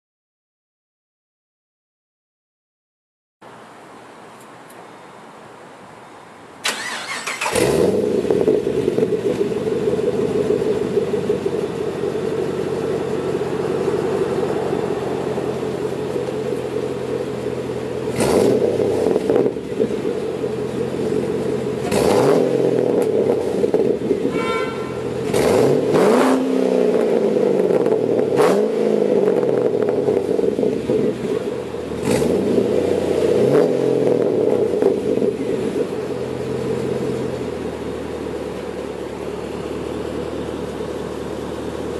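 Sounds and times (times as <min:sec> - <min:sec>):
car engine starter cranking: 0:06.6 - 0:08.0
engine revving: 0:06.7 - 0:36.0
car engine idling: 0:06.7 - 0:41.9.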